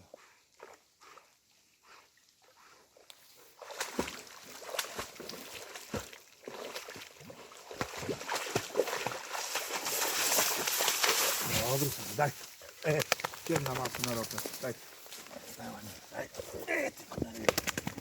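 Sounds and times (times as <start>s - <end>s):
dog splashing through water: 3.4s - 11.9s.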